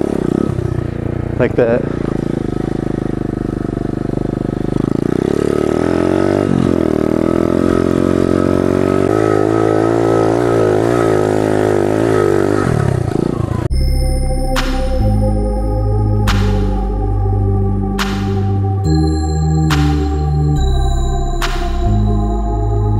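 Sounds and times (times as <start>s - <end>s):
small motorbike engine revving: 0.0s - 13.7s.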